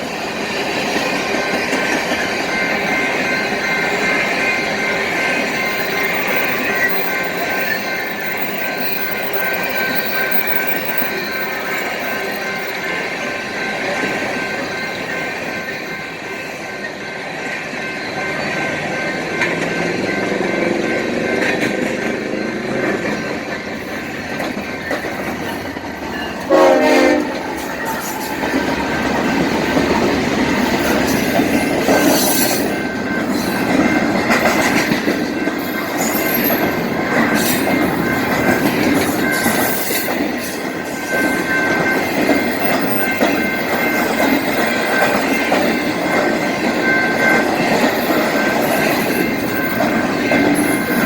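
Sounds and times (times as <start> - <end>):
train wheels clattering on rails: 0.0 - 51.0
train horn blast: 26.5 - 28.4.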